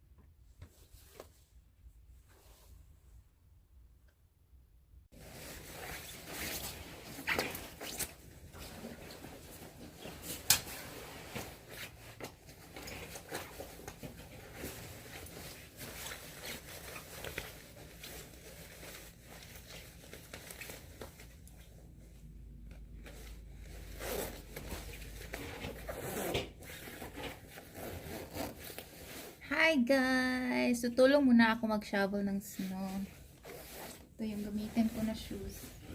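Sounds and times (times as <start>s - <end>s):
clothing rustling: 0.4s - 3.2s, 5.1s - 30.7s, 32.2s - 35.9s.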